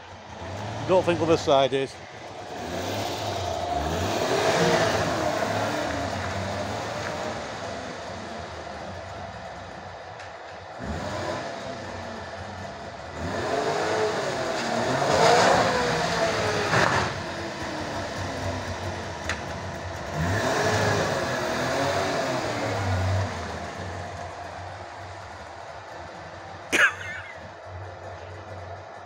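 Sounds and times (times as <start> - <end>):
two-stroke car engine revving: 0.3 - 9.6, 10.7 - 27.5.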